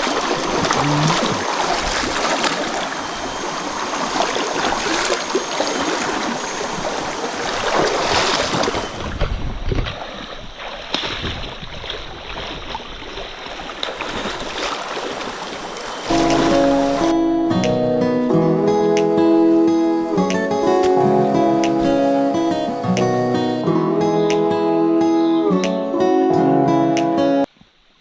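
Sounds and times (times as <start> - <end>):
water splashes and knocks: 0.0 - 3.0, 7.4 - 17.1
water rushing: 0.0 - 25.6
acoustic guitar music: 16.1 - 27.5.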